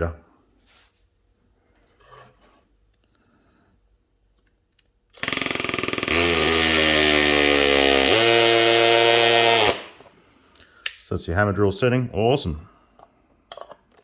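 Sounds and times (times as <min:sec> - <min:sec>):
hammer drill running: 0:05.2 - 0:10.0.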